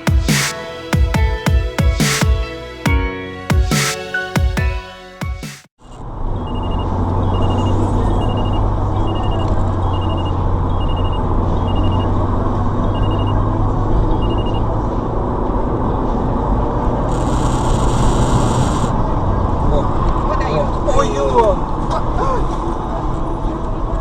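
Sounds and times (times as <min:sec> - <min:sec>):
vehicle driving rumble: 0:05.8 - 0:24.0.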